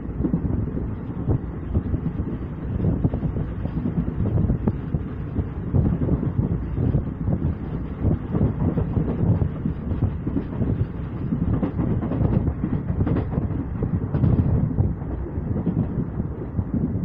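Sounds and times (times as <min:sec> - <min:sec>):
train wheels rumbling on track: 0:00.0 - 0:17.0
wheel clacks: 0:07.3 - 0:16.1.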